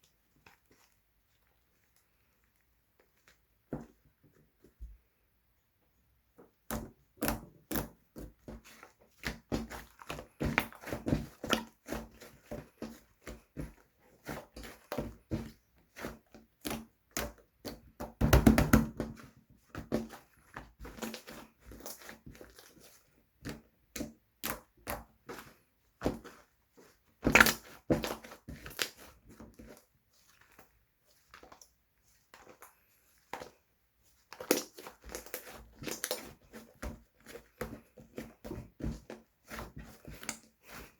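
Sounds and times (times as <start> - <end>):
slime squeezed by hand: 27.2 - 29.8, 34.2 - 38.4.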